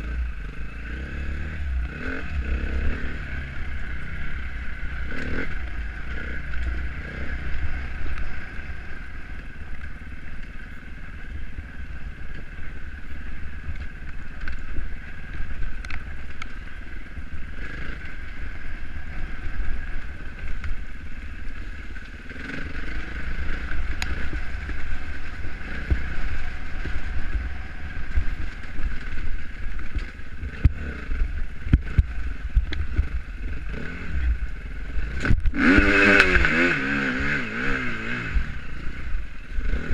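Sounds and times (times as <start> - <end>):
motorbike engine: 0.0 - 39.9
wind rumble on microphone: 0.0 - 39.9
knocks and clicks from bike: 28.1 - 33.2.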